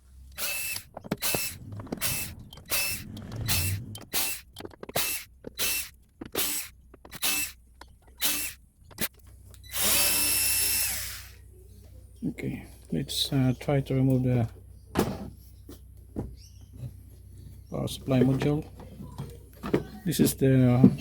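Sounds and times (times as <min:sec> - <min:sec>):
power drill whirring: 0:00.2 - 0:07.6, 0:08.2 - 0:11.4.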